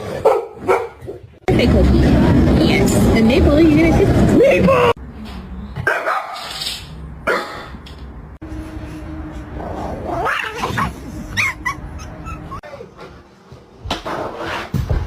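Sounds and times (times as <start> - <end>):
pet animal crying: 10.1 - 12.6.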